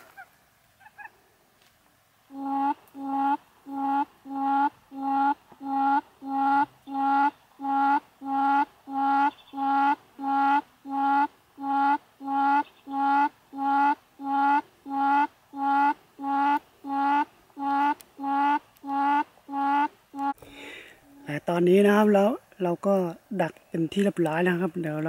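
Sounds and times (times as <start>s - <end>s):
bird call through loudspeaker: 2.4s - 20.4s.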